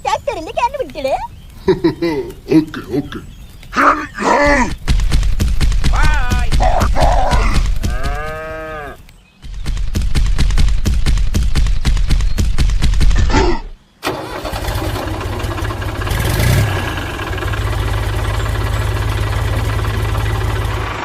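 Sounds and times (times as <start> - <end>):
engine starting and running: 14.0 - 21.0
tractor engine chugging: 14.0 - 21.0.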